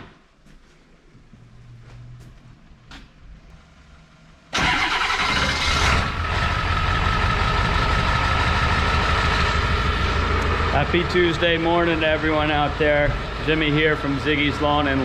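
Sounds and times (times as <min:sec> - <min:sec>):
diesel truck engine starting and idling: 0:04.3 - 0:15.0.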